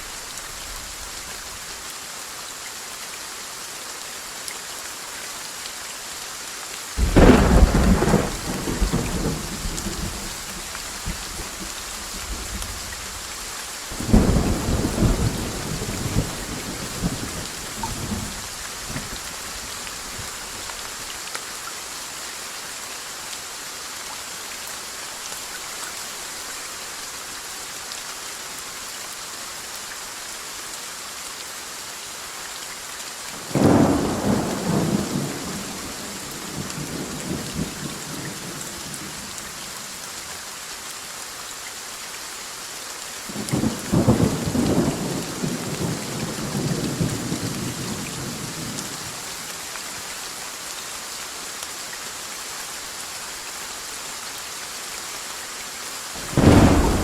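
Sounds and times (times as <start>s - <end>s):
rain hiss: 0.0s - 57.0s
thunder rumbling: 7.0s - 11.6s, 56.2s - 57.0s.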